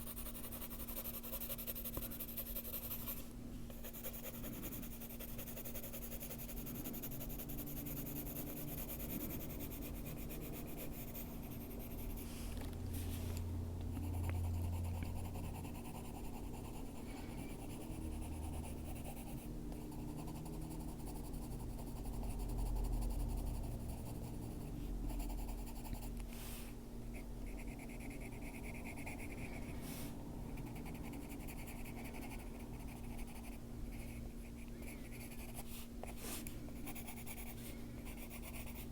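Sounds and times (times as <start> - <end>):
pencil scratching on paper: 0.0 - 12.3, 14.1 - 26.1, 35.0 - 38.9
steady low hum: 0.0 - 38.9.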